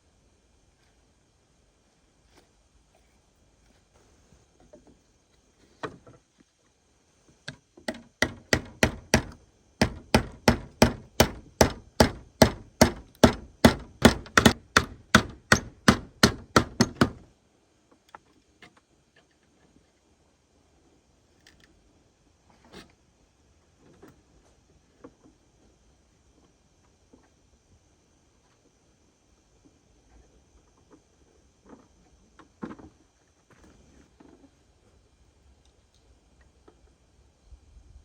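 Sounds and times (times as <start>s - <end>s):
blade chopping rapidly: 8.2s - 17.2s.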